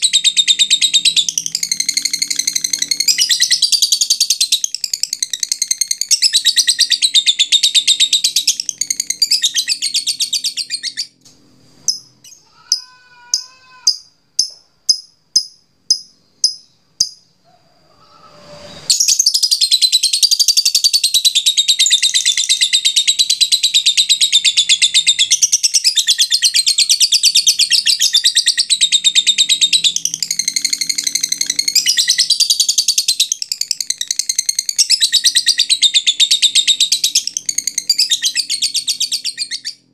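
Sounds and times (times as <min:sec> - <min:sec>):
lovebird chattering trill: 0:00.0 - 0:11.1, 0:11.9 - 0:17.3
sharp bird ticks: 0:13.4 - 0:17.2.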